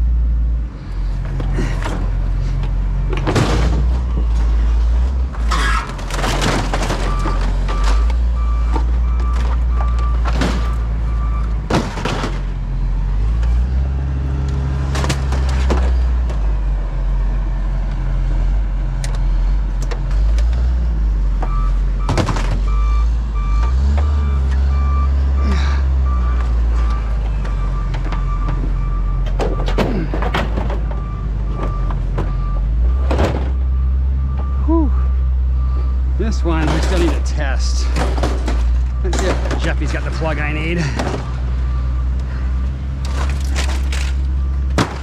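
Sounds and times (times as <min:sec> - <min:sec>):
heavy vehicle engine rumble: 0:00.0 - 0:45.0
reverse alarm beeping: 0:21.4 - 0:30.1, 0:31.0 - 0:37.9.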